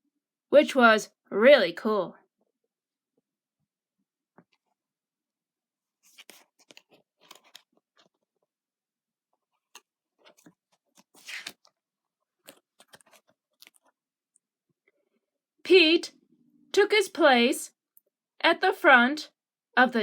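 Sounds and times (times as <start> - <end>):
paper pages rustling: 6.0 - 8.5, 9.4 - 14.0.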